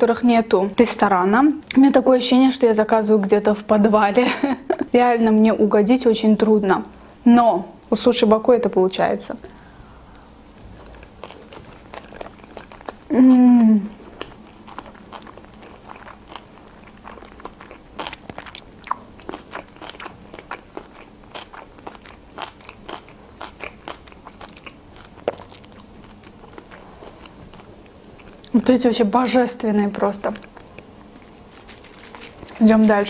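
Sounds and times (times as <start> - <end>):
person chewing food: 10.6 - 28.6, 30.4 - 33.0
hummed mmm of enjoyment: 12.2 - 14.8.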